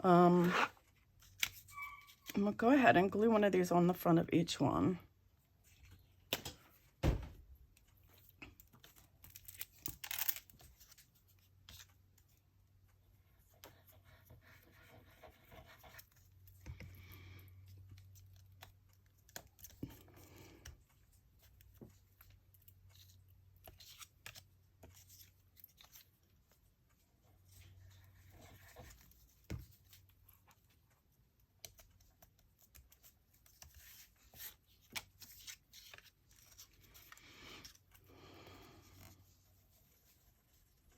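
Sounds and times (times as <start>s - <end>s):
paper rustling: 31.6s - 38.1s.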